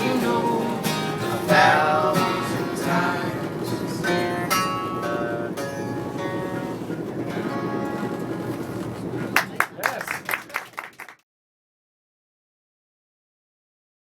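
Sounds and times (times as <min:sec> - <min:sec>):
acoustic guitar strumming: 0:00.0 - 0:09.1.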